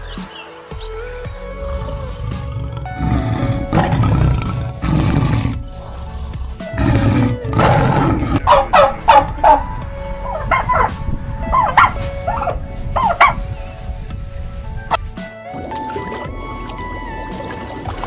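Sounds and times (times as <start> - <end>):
background music: 0.0 - 18.0
tiger growling: 1.5 - 13.4.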